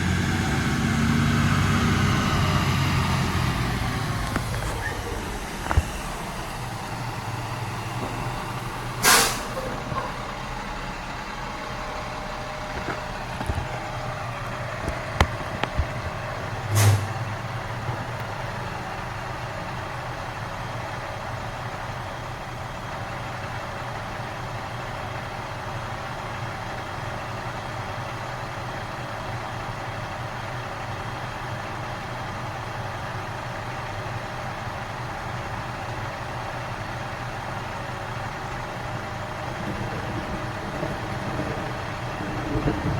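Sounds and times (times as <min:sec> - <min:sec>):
garbage truck engine idling: 0:00.0 - 0:42.9
air hiss bursts: 0:08.8 - 0:09.8, 0:16.7 - 0:17.2.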